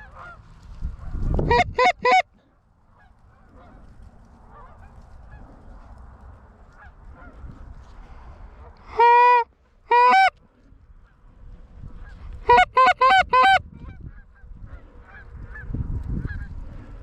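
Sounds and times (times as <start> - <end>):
geese honking: 0.0 - 5.8, 6.6 - 7.6, 8.7 - 10.4, 12.0 - 16.9
distant geese honking: 0.0 - 17.0.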